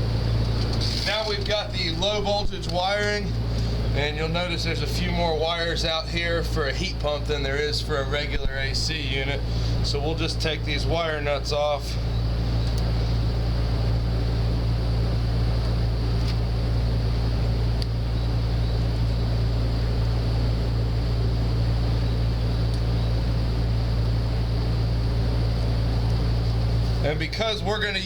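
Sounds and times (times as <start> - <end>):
low machine hum: 0.0 - 28.0
faint light clicks: 12.6 - 12.9.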